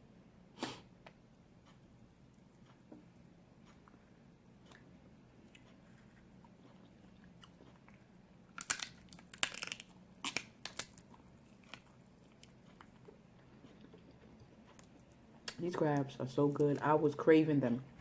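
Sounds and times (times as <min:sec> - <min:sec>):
crab shells cracking: 0:07.9 - 0:13.0.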